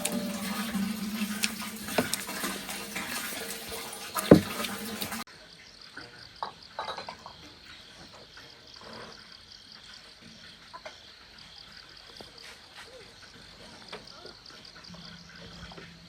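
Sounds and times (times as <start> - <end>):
water running and splashing: 0.0 - 5.3
insects chirping: 4.2 - 16.0
sharp loud knock: 4.3 - 4.5.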